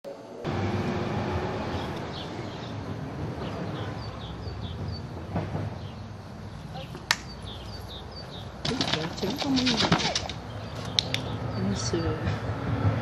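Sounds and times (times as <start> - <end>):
outdoor background noise: 0.0 - 13.0
small bird chirping: 5.8 - 12.3.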